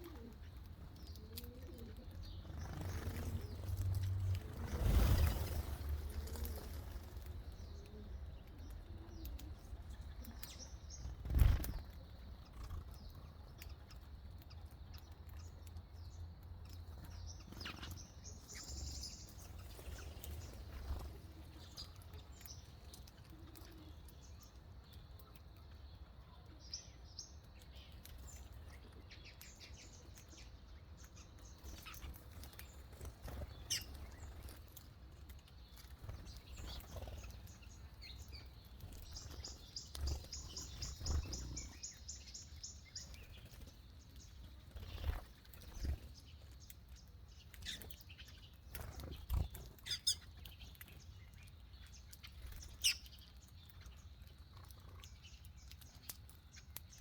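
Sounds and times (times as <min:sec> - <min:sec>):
small birds chirping: 0:00.0 - 0:57.0
wing flutters: 0:02.3 - 0:07.8, 0:11.0 - 0:13.0, 0:35.7 - 0:42.3.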